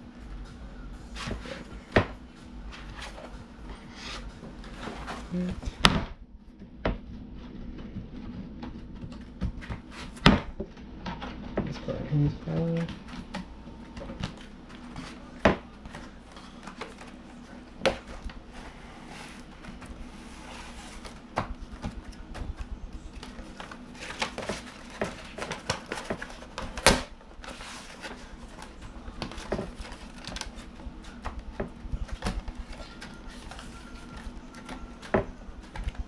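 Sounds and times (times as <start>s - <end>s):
sheet rustling and crinkling: 7.2s - 36.0s.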